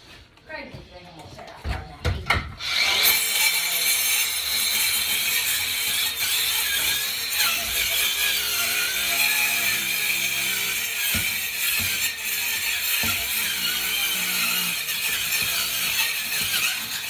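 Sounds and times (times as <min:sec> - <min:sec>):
power tool whining: 0:02.6 - 0:17.0.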